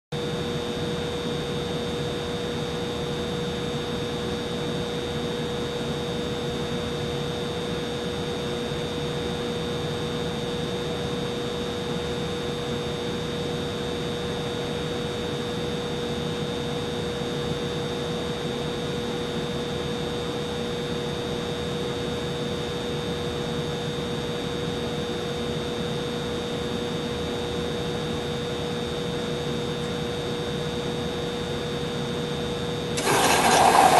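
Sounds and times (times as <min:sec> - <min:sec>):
humidifier whirring: 0:23.2 - 0:33.9.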